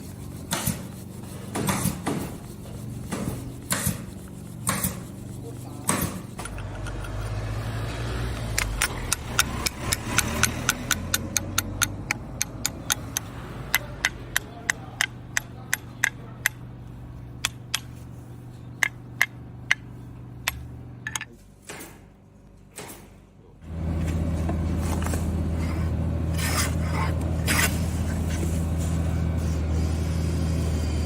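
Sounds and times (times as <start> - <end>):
blade sharpening on a whetstone: 0.0 - 7.4, 25.6 - 28.5
steady low hum: 0.0 - 10.1.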